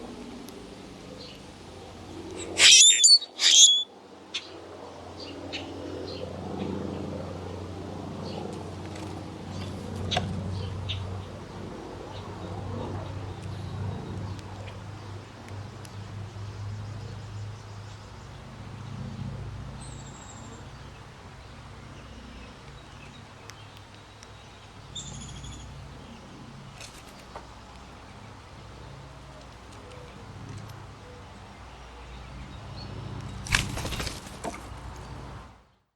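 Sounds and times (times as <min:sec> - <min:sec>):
high bird chirps: 0:02.4 - 0:03.9.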